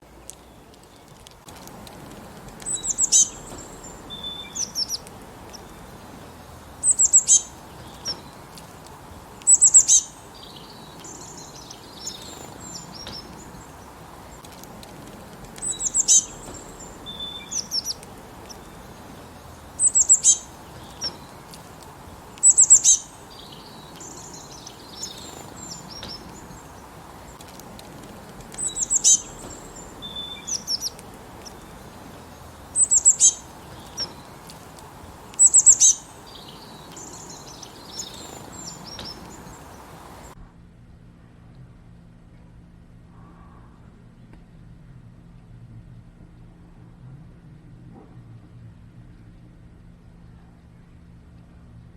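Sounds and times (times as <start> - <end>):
small birds chirping: 0.0 - 40.4.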